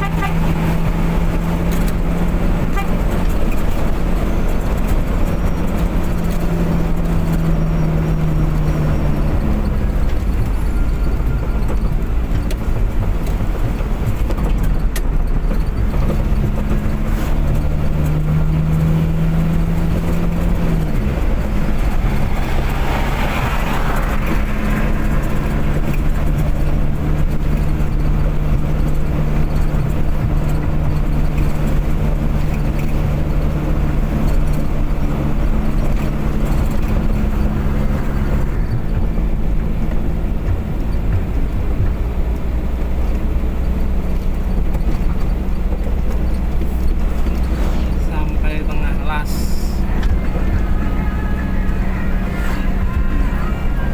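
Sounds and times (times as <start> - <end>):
car engine hum: 0.0 - 53.9
road noise: 0.0 - 53.9
brief rushing swell: 47.5 - 48.2.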